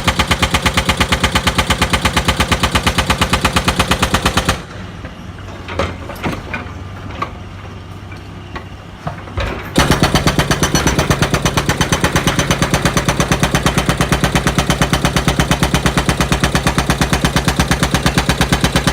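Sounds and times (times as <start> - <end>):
hydraulic breaker hammering: 9.8 - 18.9.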